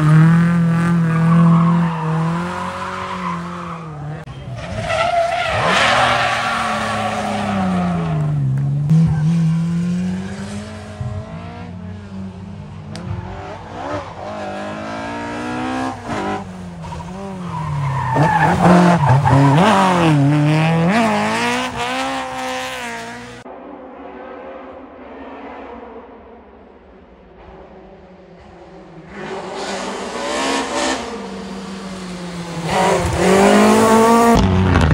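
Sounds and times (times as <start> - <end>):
tyres skidding and squealing: 0.0 - 10.8, 13.1 - 22.4
rally car engine revving: 0.0 - 23.5, 28.4 - 34.9.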